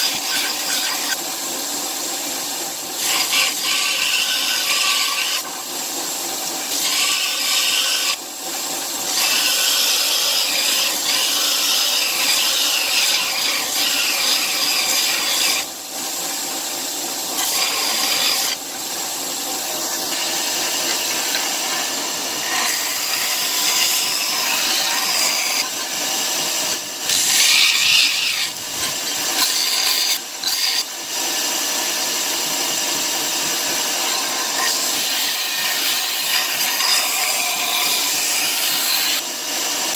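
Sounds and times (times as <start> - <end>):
tool rubbing with coarse abrasion: 0.0 - 1.2, 2.2 - 5.7, 6.5 - 39.9.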